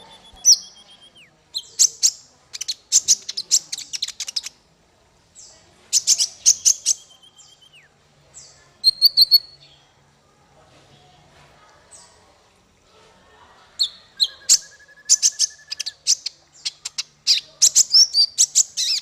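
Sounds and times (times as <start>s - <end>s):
songbird whistles and chirping trills: 0.0s - 4.6s, 5.4s - 9.8s, 13.8s - 19.0s.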